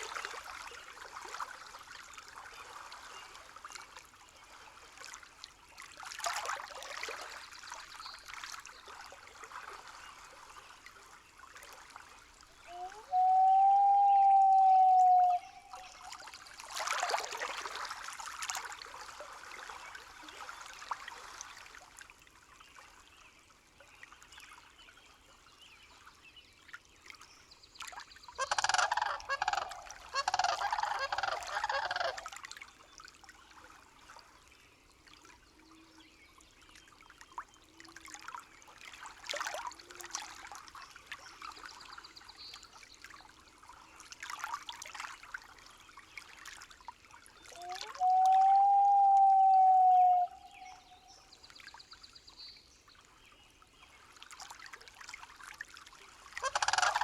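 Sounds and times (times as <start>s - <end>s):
faint trickle of water: 0.0s - 57.0s
bird honking calls: 28.4s - 32.2s, 56.4s - 57.0s.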